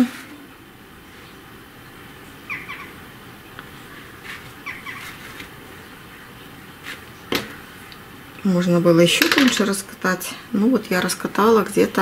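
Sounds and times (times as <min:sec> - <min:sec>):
bird chirping: 0:02.4 - 0:03.0, 0:04.6 - 0:05.1.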